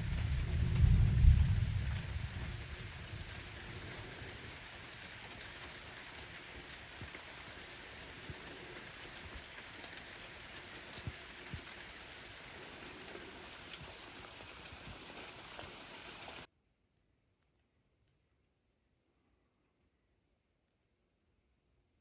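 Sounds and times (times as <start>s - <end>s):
low thunder rumble: 0.0s - 4.8s
louder individual raindrops: 0.0s - 16.5s
steady rain falling: 0.0s - 16.5s.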